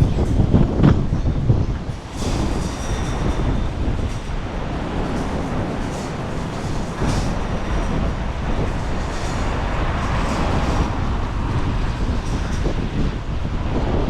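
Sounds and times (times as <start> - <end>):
storm wind buffeting microphone: 0.0 - 14.0.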